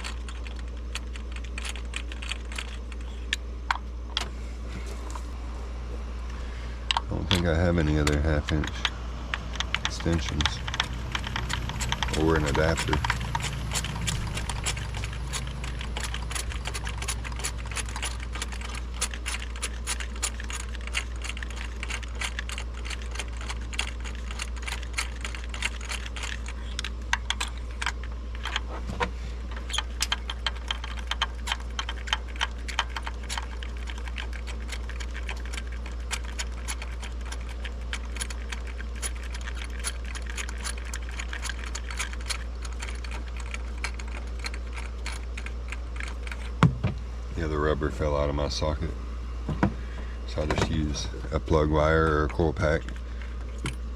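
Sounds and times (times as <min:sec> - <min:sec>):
steady low hum: 0:00.0 - 0:53.9
ratchet clicking: 0:06.9 - 0:28.7, 0:29.6 - 0:46.5.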